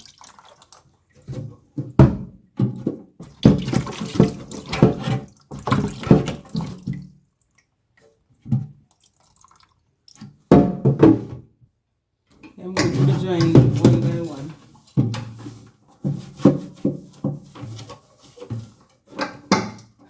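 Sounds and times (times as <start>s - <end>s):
water splashing and pouring: 0.0s - 1.6s, 3.2s - 10.5s.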